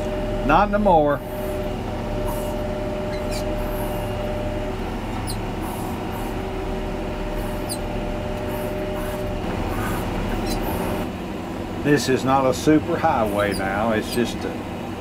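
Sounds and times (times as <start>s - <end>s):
diesel engine droning under load: 0.0s - 15.0s
high squeaks: 2.2s - 4.3s, 5.1s - 6.4s, 7.4s - 7.9s, 8.5s - 11.0s, 13.2s - 14.3s.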